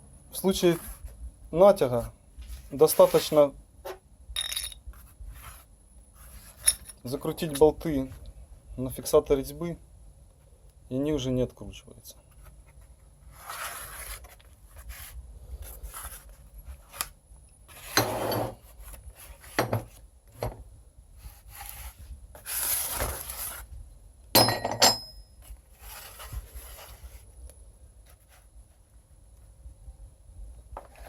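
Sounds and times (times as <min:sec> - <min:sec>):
metal parts rubbing and scraping: 0:06.2 - 0:07.7, 0:17.7 - 0:18.7
sharp metallic clinks: 0:24.4 - 0:25.3.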